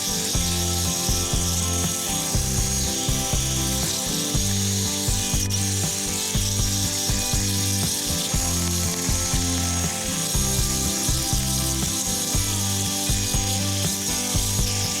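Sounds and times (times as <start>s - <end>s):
background music with bass notes: 0.0s - 15.0s
constant high hiss: 0.0s - 15.0s.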